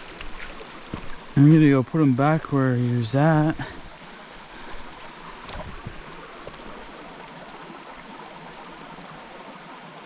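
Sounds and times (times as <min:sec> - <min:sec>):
stream running over rocks: 0:00.0 - 0:10.0.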